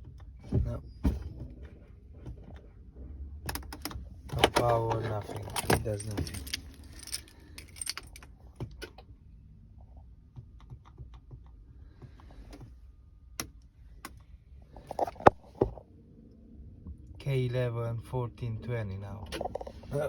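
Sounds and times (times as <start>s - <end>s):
clicks of truck cab controls: 3.5s - 6.1s, 13.4s - 14.3s.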